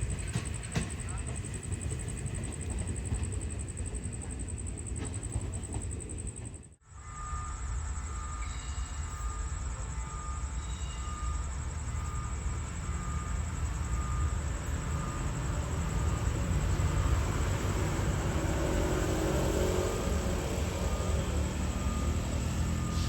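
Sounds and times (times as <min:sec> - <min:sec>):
train rumbling: 0:00.0 - 0:23.0
faint high beep: 0:07.0 - 0:15.3.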